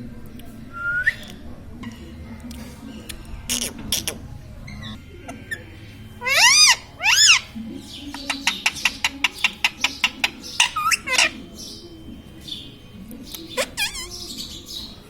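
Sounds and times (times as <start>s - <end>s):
parrot screeching: 6.2s - 7.5s, 8.4s - 11.4s, 13.6s - 14.2s.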